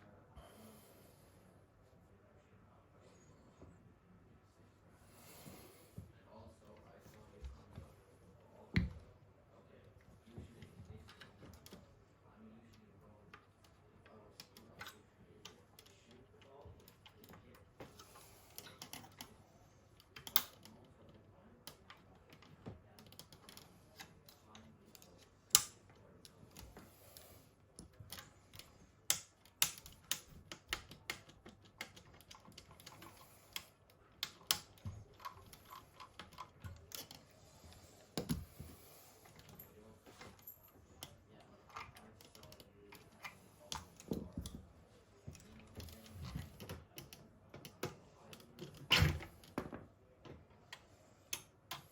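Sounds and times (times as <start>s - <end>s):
small parts and tools clicking: 13.3s - 19.4s, 20.0s - 27.2s, 27.8s - 37.4s.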